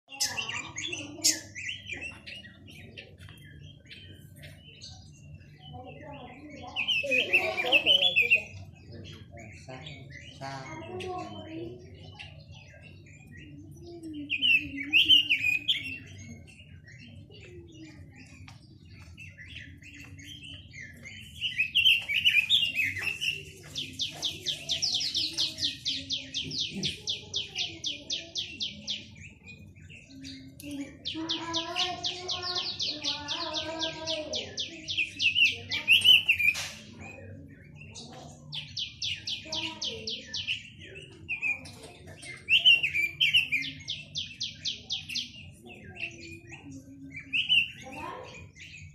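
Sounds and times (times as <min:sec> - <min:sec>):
songbird singing and trilling: 0:00.0 - 0:48.9.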